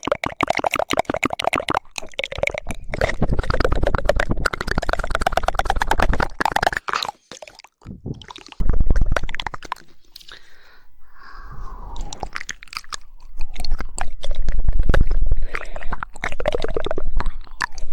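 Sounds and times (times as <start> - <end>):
rapid wet tongue clicking: 0.0 - 17.9
wet mouth sounds: 0.0 - 17.9.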